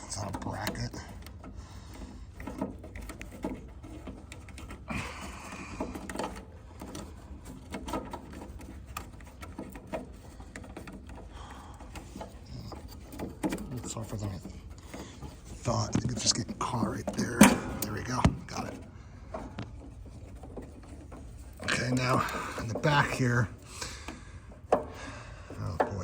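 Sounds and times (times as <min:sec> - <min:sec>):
light clicks and knocks on metal: 0:00.0 - 0:26.0.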